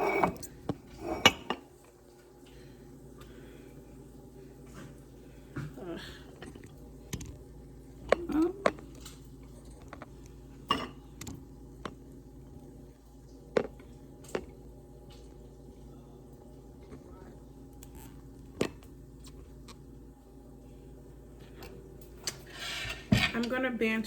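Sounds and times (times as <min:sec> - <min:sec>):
dishes and utensils clinking: 0:00.0 - 0:01.7
low steady hum: 0:00.0 - 0:24.0.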